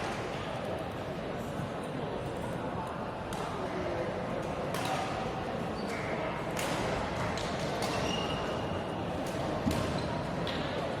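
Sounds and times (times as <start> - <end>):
racket hitting shuttlecock: 4.7 - 5.2, 6.6 - 8.3
shoe squeaks on court floor: 7.9 - 8.7.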